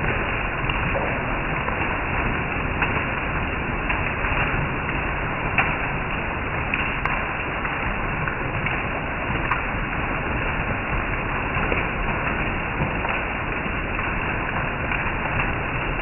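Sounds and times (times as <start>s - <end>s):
rain on foliage: 0.0s - 16.0s.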